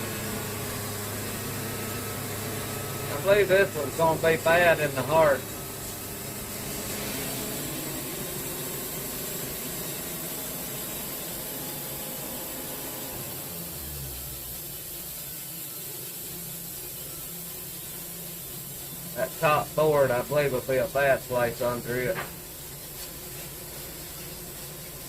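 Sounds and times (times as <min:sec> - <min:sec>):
sawmill running: 0:00.0 - 0:25.0.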